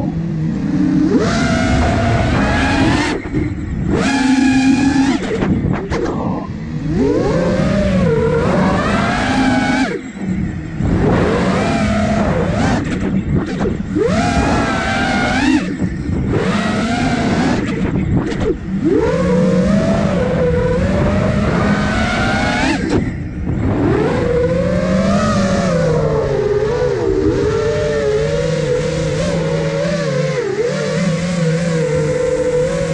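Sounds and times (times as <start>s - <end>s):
drone motors whining: 0.0s - 32.9s.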